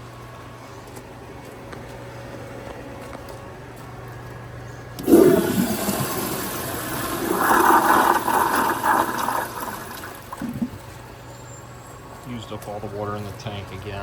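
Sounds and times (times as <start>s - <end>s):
toilet flushing: 5.0s - 11.0s.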